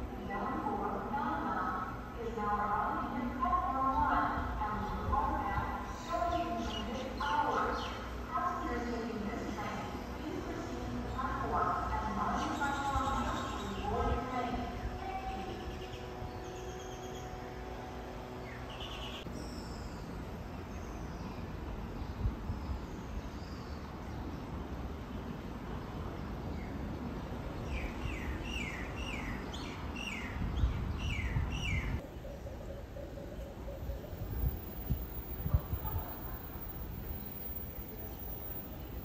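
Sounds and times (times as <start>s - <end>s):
small birds chirping: 3.8s - 17.4s, 18.3s - 39.0s.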